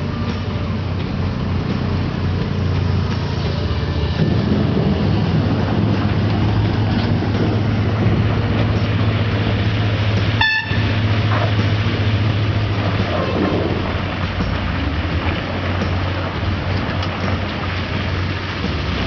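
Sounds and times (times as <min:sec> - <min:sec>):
diesel engine running: 0:00.0 - 0:19.0
short high horn toot: 0:10.4 - 0:10.9.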